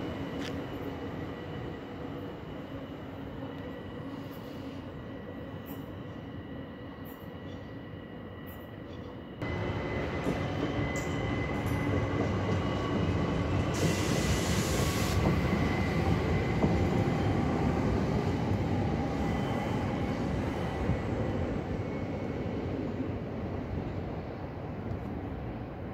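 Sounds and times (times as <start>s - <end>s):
train wheels rumbling on rails: 8.5s - 25.9s
burst of hiss: 13.8s - 15.3s.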